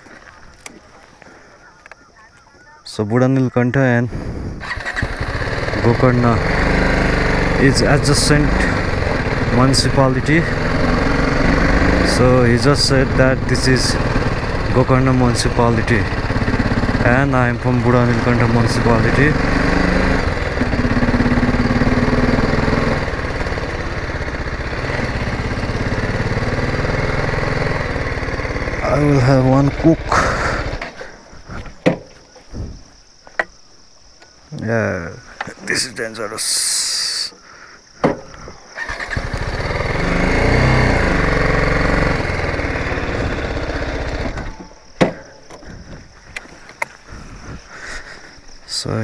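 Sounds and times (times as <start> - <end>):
motorcycle engine chugging: 4.1 - 31.6, 38.2 - 48.6.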